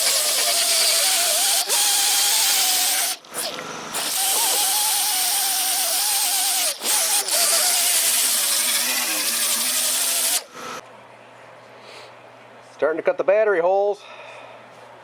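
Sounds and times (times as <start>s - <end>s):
power tool cutting wood: 0.0s - 10.8s.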